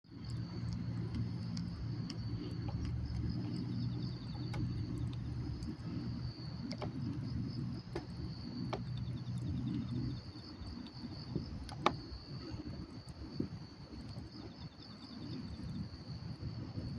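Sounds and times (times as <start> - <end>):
campfire crackling and popping: 0.1 - 15.8
low steady hum: 0.1 - 16.9
night insects trilling: 0.1 - 16.9.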